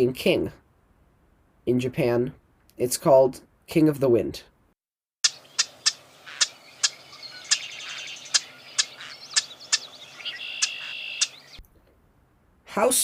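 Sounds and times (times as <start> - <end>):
wren clicking and trilling: 5.2 - 11.6.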